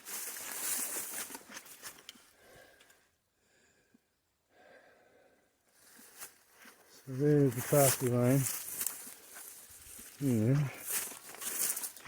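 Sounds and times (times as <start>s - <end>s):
steps rustling through brush: 0.0s - 2.3s, 5.8s - 12.0s.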